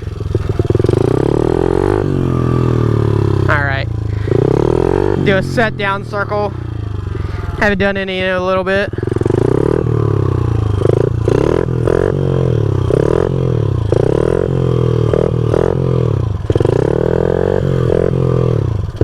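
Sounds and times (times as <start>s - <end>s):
small motorbike engine revving: 0.0s - 7.8s, 8.9s - 19.0s.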